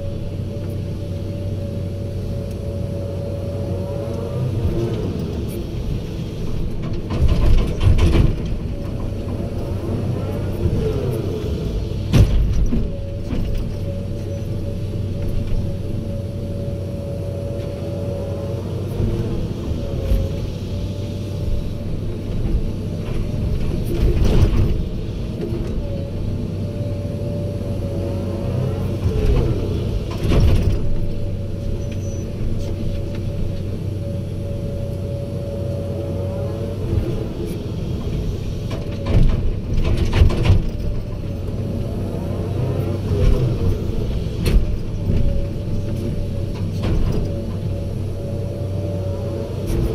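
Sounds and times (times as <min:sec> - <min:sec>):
excavator diesel engine running: 0:00.0 - 0:49.9
loud knocks and clunks: 0:06.8 - 0:08.7, 0:12.1 - 0:13.7, 0:38.7 - 0:41.2.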